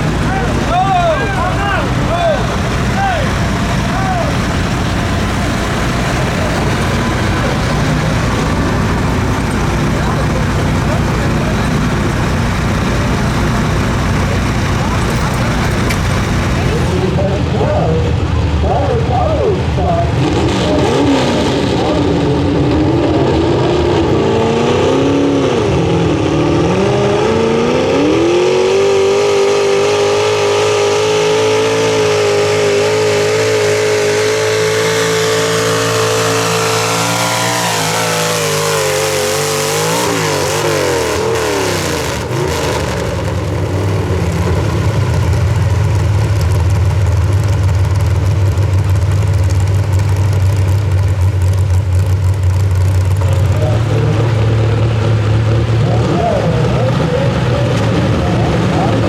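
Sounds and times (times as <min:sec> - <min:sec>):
loud low rumble: 0:00.0 - 0:29.0
truck engine at full throttle: 0:00.0 - 0:59.0.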